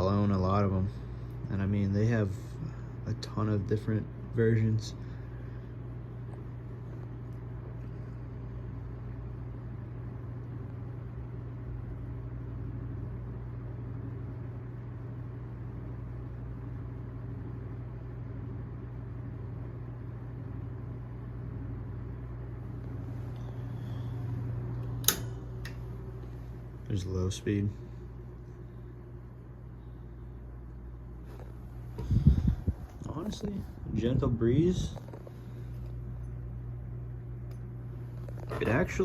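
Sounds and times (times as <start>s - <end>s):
fan motor humming: 0.0s - 39.0s
air rushing from fan: 22.4s - 39.0s.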